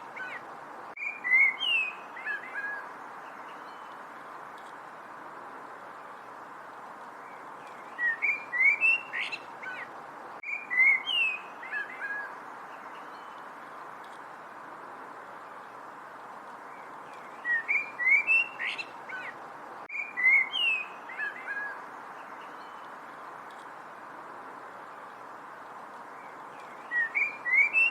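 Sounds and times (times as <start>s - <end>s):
steady background hiss: 0.0s - 27.9s
songbird whistling: 1.0s - 2.8s, 7.9s - 9.8s, 10.4s - 12.3s, 17.3s - 19.3s, 19.9s - 21.8s, 26.6s - 27.9s.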